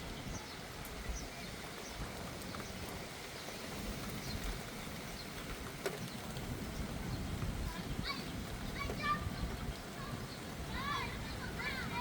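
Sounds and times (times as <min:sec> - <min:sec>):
steady rain falling: 0:00.0 - 0:12.0
wind rumble on microphone: 0:00.0 - 0:12.0.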